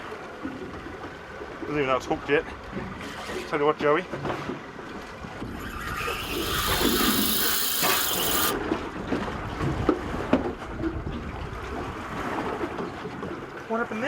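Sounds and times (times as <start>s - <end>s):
water and boat noise: 0.0s - 14.0s
fishing reel drag screaming: 5.5s - 8.6s.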